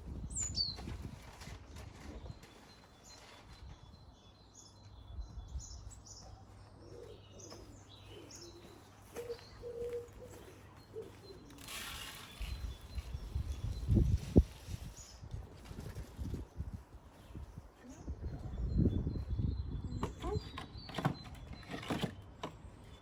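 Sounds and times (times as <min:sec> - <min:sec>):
birds chirping: 0:00.0 - 0:23.0
pigeon cooing: 0:06.7 - 0:11.6
rustle: 0:06.8 - 0:17.4.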